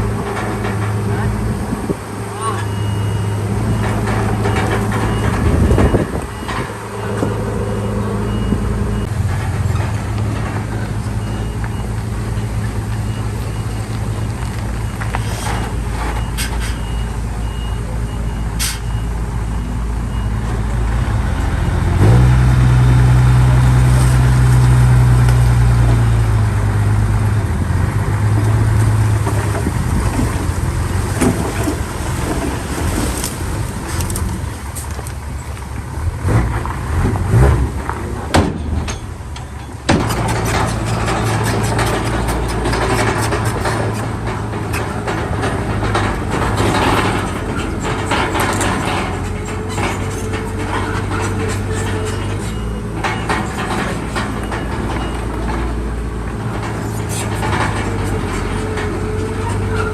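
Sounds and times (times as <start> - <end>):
heavy diesel engine running: 0.0 - 59.9
reversing alarm beeping: 2.4 - 9.2, 11.0 - 23.1.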